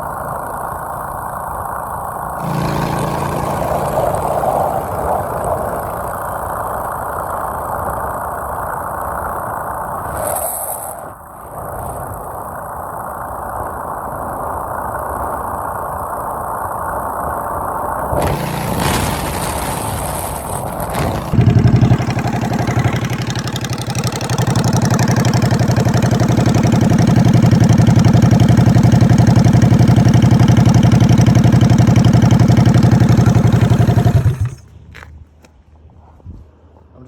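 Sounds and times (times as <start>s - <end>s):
motorcycle engine running: 2.2s - 6.7s, 18.2s - 34.7s.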